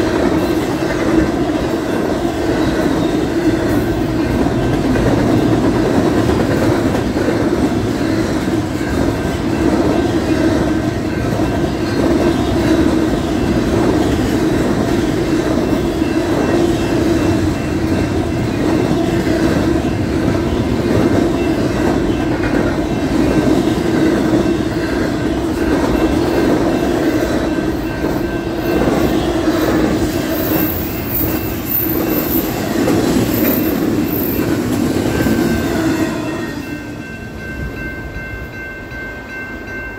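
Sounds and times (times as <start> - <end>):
freight train wheels rumbling: 0.0 - 39.9
high-pitched wheel squeals: 30.3 - 36.7.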